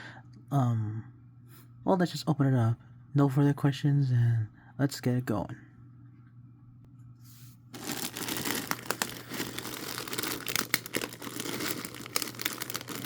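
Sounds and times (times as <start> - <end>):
packaging torn and crinkled: 7.8 - 13.0.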